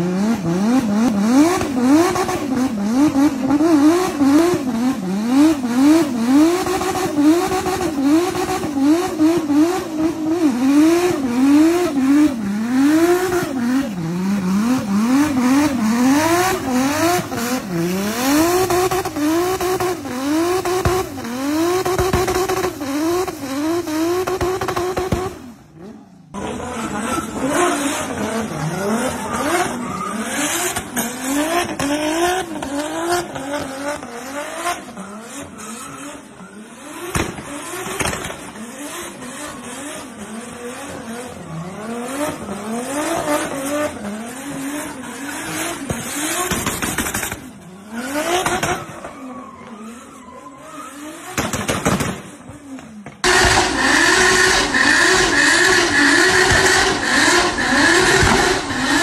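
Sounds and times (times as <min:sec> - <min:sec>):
car engine revving hard: 0:00.0 - 0:48.9, 0:53.2 - 0:59.0
tyres squealing in a burnout: 0:05.3 - 0:51.4, 0:53.3 - 0:59.0.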